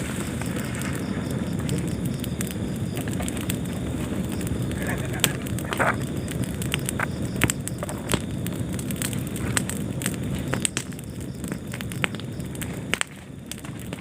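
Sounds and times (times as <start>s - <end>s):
fire crackling and popping: 0.0s - 14.0s
fire rumbling in fireplace: 0.0s - 14.0s.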